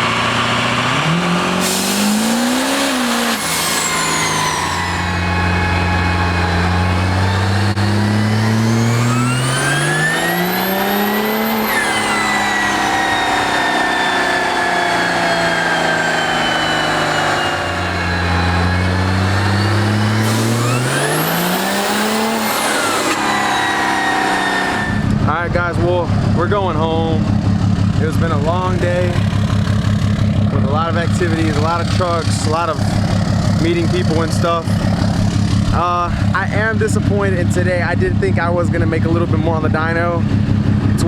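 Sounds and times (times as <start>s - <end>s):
vehicle engine revving: 0.0s - 41.0s
high whistle: 1.6s - 7.8s, 11.5s - 19.0s, 19.6s - 25.1s.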